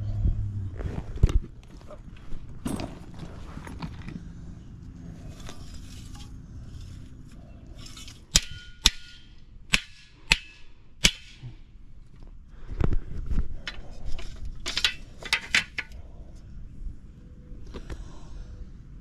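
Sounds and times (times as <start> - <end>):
scraping and handling noise: 0.7 - 8.9, 12.1 - 16.4
sharp metallic knocks: 8.3 - 11.5.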